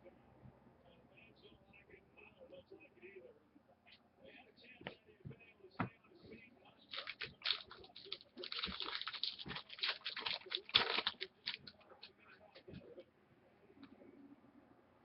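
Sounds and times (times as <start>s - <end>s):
packaging crinkling and rustling: 6.9s - 11.8s.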